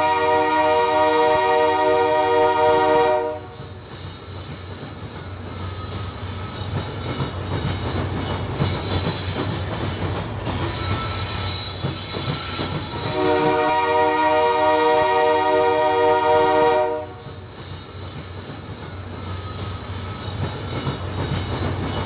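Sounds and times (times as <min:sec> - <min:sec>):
locomotive air horn chord: 0:00.0 - 0:03.6, 0:13.1 - 0:17.3
freight train rumbling: 0:00.0 - 0:22.0.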